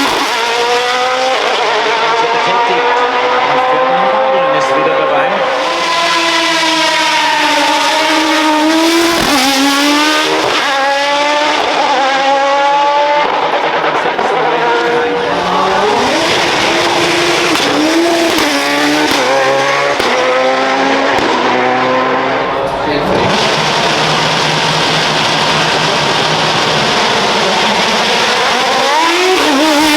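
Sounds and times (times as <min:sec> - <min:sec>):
race car engine accelerating: 0:00.0 - 0:29.9.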